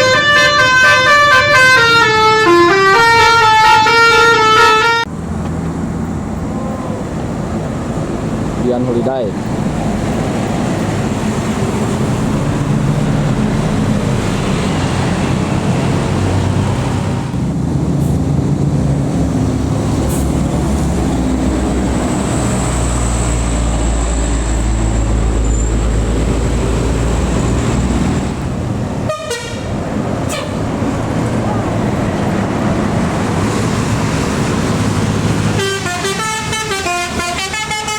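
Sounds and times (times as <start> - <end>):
multi-tone air horns: 0.0 - 5.1, 29.1 - 29.7, 30.3 - 30.6, 35.5 - 37.9
diesel bus engines rumbling: 0.0 - 37.9.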